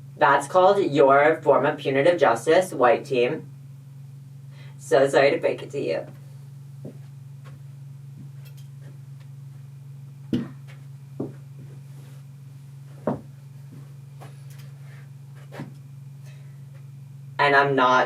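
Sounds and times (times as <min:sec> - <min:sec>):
low electrical hum: 0:00.0 - 0:18.0
handling knocks: 0:10.3 - 0:11.7, 0:13.0 - 0:13.9.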